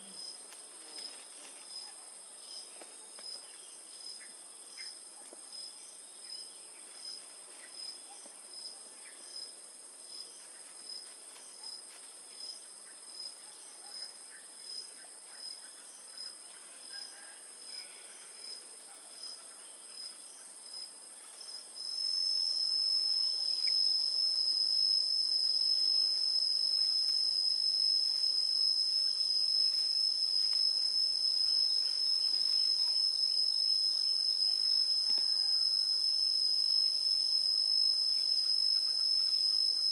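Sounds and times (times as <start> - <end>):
high insect trill: 0.0 - 39.9
insects chirping: 0.0 - 39.9.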